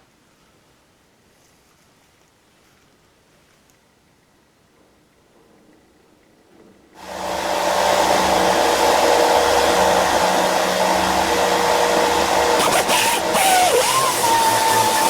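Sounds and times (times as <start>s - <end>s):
power tool motor whirring: 7.0s - 15.0s.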